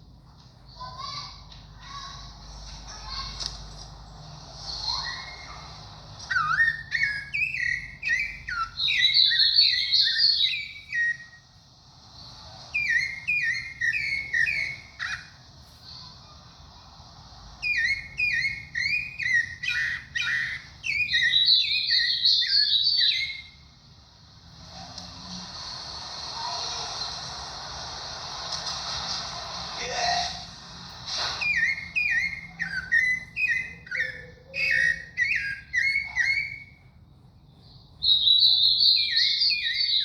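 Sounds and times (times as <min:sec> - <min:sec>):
thrush singing whistled notes: 0:06.2 - 0:11.5, 0:12.7 - 0:15.4, 0:17.6 - 0:23.7, 0:31.1 - 0:37.0, 0:38.0 - 0:40.0.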